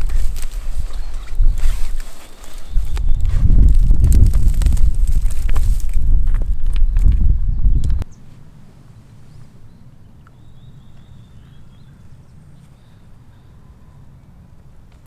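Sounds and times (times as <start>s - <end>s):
wind buffeting microphone: 0.0s - 8.1s
low wind rumble: 0.0s - 9.0s
faint bird chirps: 9.3s - 14.4s.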